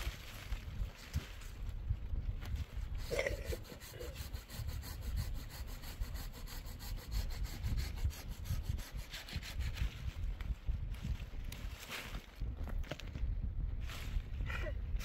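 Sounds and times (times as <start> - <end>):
wind rumble on microphone: 0.0 - 15.0
fast scraping strokes: 3.0 - 10.2.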